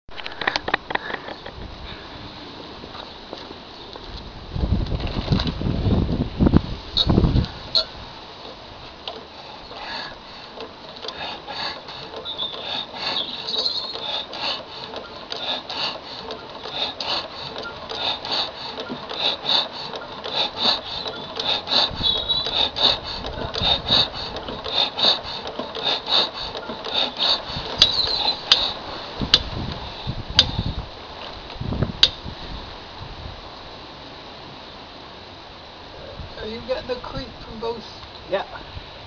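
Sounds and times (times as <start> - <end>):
diesel engine running slowly: 7.3 - 33.6
sharp clicks: 8.4 - 29.8.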